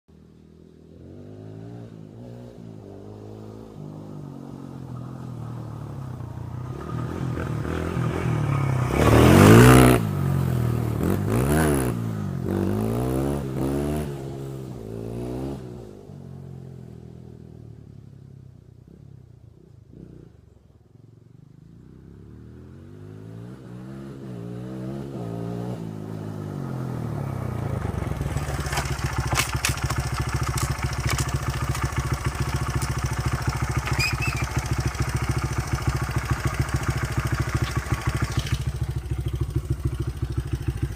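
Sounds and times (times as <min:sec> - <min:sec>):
dirt bike engine revving: 0:06.6 - 0:15.8, 0:22.4 - 0:40.9.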